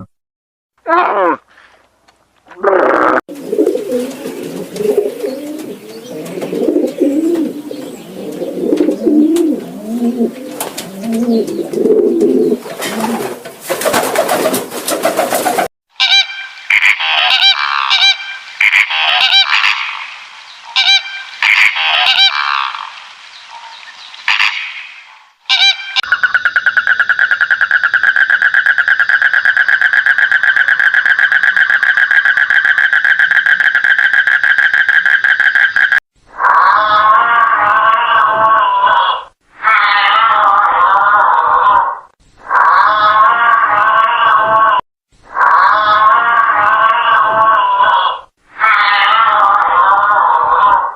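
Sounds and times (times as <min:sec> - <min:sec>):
geese honking: 0:16.0 - 0:20.1, 0:20.7 - 0:23.0.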